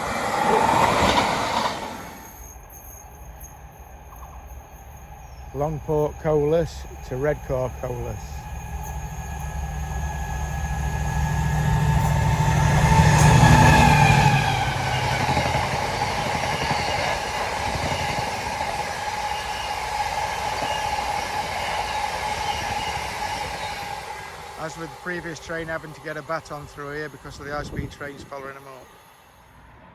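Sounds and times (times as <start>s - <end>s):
diesel locomotive engine: 0.0s - 29.9s
freight wagons rumbling past: 4.1s - 19.4s.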